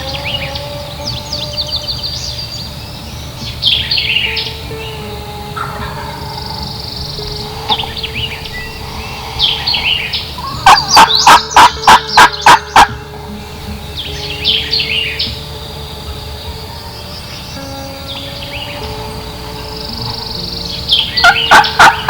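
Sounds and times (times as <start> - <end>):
songbirds chirping: 0.0 - 22.0
wild turkey yelping: 5.6 - 17.6, 20.0 - 22.0.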